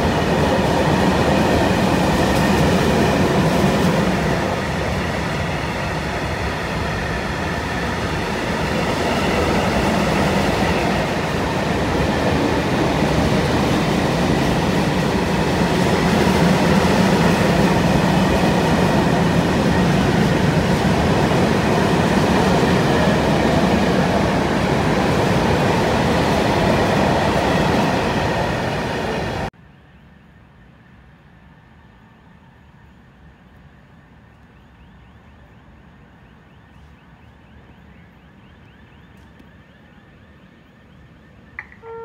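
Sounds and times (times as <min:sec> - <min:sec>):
freight train wheels rumbling: 0:00.0 - 0:29.5.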